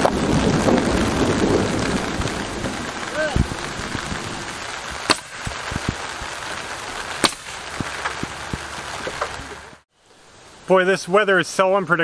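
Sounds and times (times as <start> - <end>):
sharp cracks: 0.0 - 9.6
steady rain hiss: 0.0 - 12.0.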